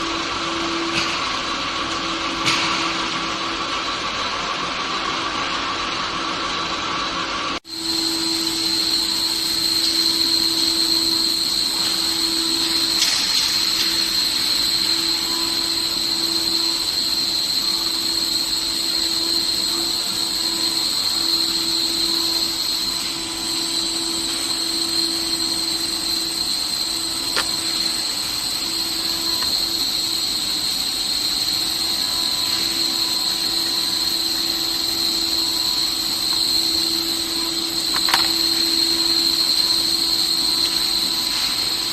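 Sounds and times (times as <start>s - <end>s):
router spindle whine: 7.6s - 41.9s.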